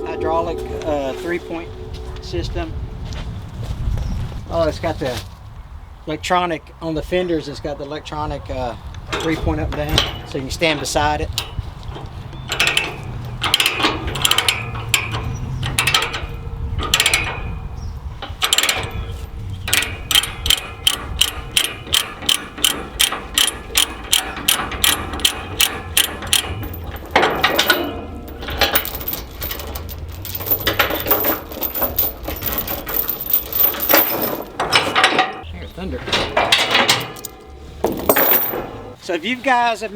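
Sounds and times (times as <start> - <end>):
metallic rattling: 18.2 - 39.0.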